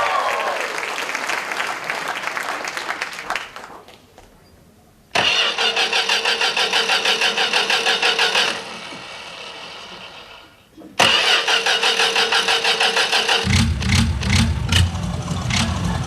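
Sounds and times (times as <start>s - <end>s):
applause: 0.0s - 4.3s
car engine cranking: 5.2s - 10.4s, 11.0s - 16.0s.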